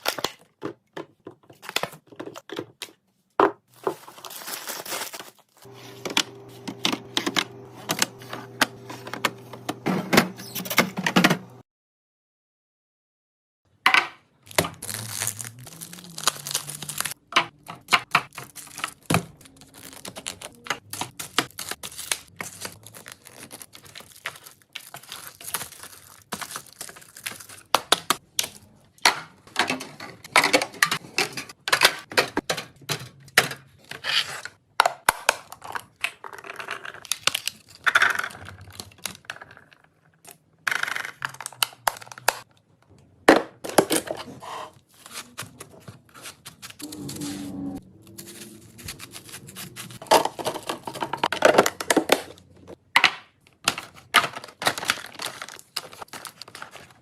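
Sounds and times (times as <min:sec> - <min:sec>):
plastic packaging tearing and crinkling: 0:03.7 - 0:06.6, 0:14.4 - 0:28.8, 0:35.4 - 0:39.7, 0:43.8 - 0:47.4, 0:48.0 - 0:52.5, 0:53.6 - 0:57.0
containers clicking and knocking: 0:50.0 - 0:56.9.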